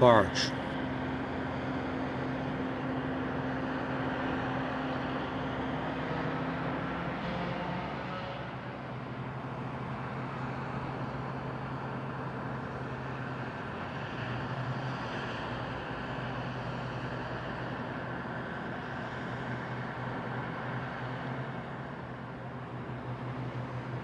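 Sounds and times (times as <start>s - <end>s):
diesel engine humming: 0.0s - 1.2s.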